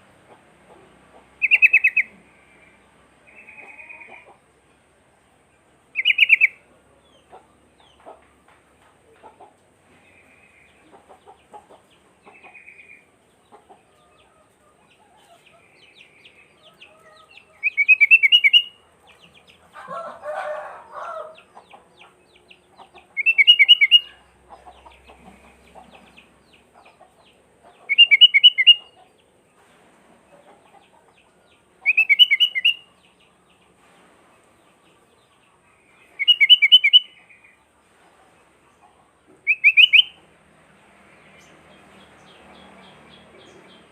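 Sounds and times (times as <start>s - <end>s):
bird singing bright phrases: 1.4s - 4.1s, 6.0s - 8.0s, 15.6s - 19.6s, 23.2s - 26.7s, 27.7s - 29.0s, 31.8s - 33.4s, 34.6s - 37.6s, 39.4s - 40.2s
soft bird chirps: 1.4s - 4.3s, 6.0s - 8.0s, 14.8s - 19.6s, 21.5s - 29.1s, 31.4s - 37.7s, 38.8s - 40.2s.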